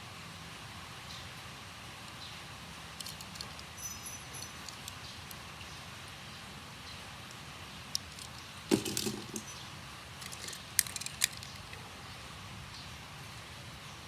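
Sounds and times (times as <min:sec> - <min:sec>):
toy cars clicking and clinking: 0:03.0 - 0:05.4, 0:07.3 - 0:09.6, 0:10.2 - 0:11.8.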